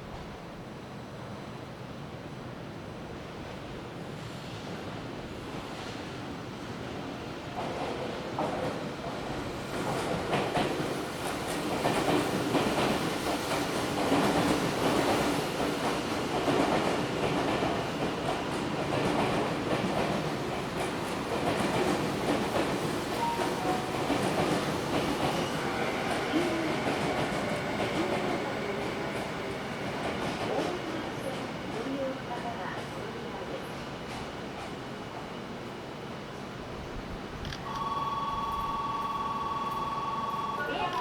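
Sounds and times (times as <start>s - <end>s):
train running noise: 7.4s - 33.1s.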